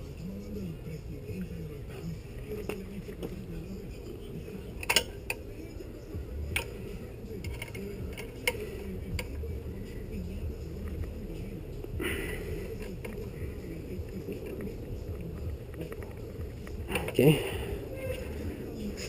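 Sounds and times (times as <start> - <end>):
steady low hum: 0.0 - 19.0
wrench clinking on a bolt: 4.8 - 5.4.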